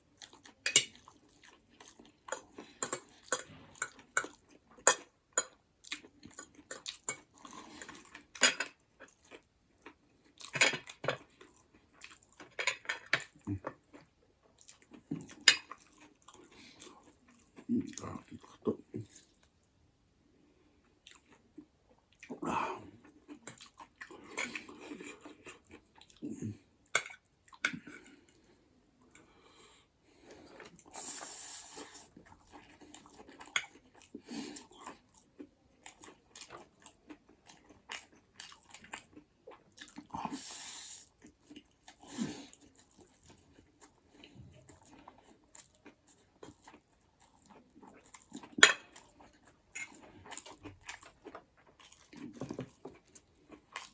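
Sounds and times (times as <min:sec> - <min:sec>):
close chewing and biting: 0:31.7 - 0:53.9.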